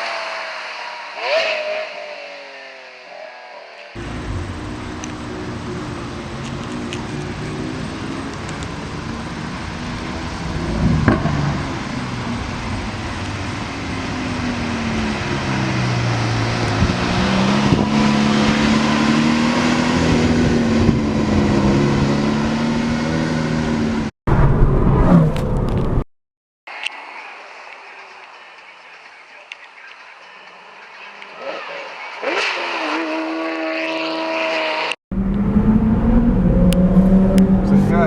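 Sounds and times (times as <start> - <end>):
car engine revving and accelerating: 0.0 - 3.0, 3.9 - 26.0, 31.2 - 38.0
car passing by: 24.3 - 26.0.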